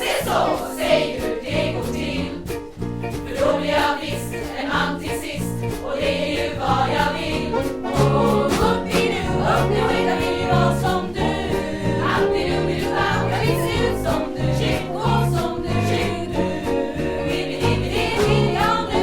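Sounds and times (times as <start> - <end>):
choir singing: 0.0 - 2.6, 3.2 - 19.0
live band accompaniment: 0.0 - 19.0
low bass line: 6.7 - 19.0.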